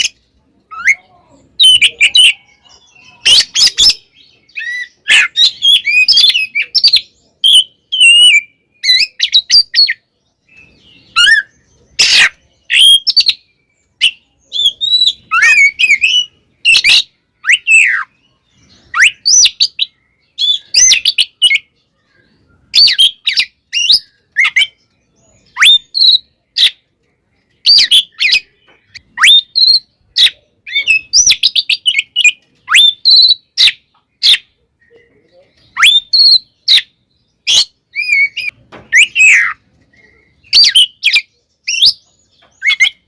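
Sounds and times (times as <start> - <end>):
magpie-robin singing: 0.0 - 43.0.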